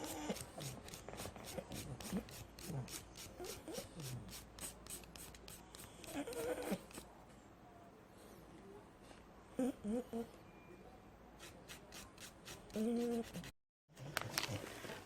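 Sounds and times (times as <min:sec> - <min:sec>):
nail file rasping: 0:00.0 - 0:07.0.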